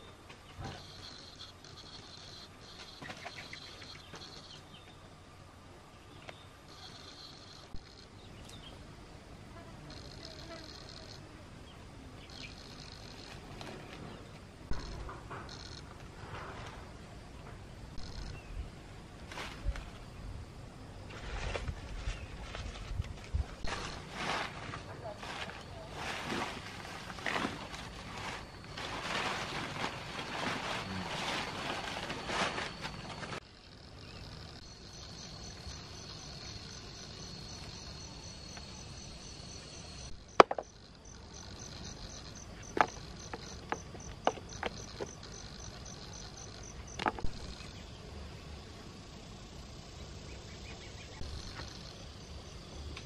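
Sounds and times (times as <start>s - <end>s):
insects chirping trill: 0.0s - 53.0s.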